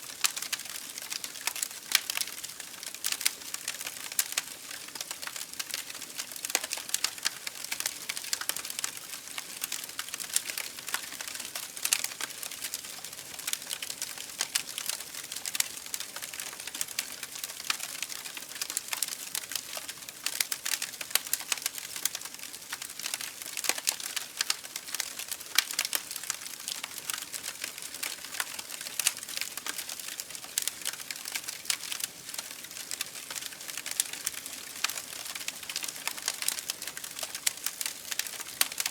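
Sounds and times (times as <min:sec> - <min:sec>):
campfire crackling: 0:00.1 - 0:38.9.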